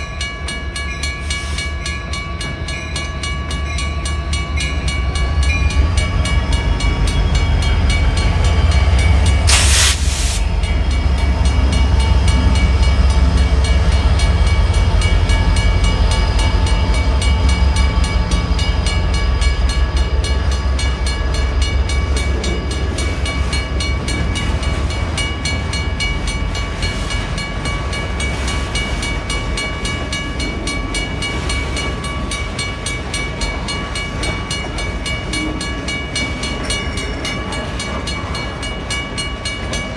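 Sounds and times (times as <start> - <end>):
freight train rumbling: 0.0 - 39.9
short hiss: 9.5 - 10.5.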